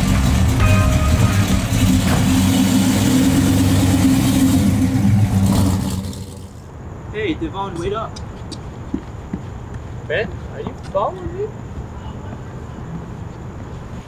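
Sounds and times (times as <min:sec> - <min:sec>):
car engine revving: 0:00.0 - 0:06.7.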